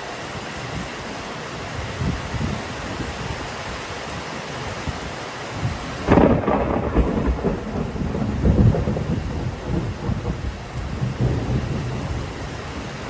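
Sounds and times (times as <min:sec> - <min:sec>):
steady rain: 0:00.0 - 0:13.0
thunder clap and rumble: 0:05.6 - 0:13.0.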